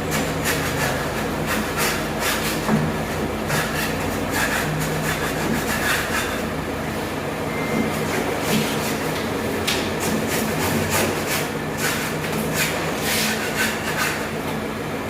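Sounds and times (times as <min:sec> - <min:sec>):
steady low hum: 0:00.0 - 0:15.0
rough rubbing strokes: 0:10.3 - 0:14.2.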